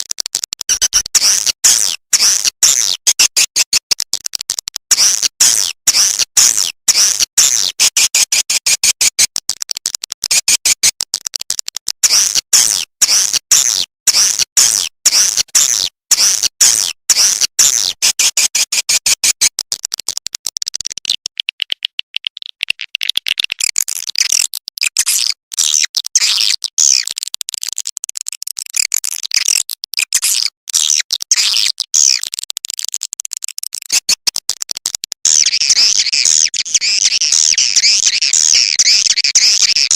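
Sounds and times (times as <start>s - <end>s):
high-pitched bird chirps: 22.4s - 27.1s, 29.3s - 32.3s, 35.3s - 39.9s.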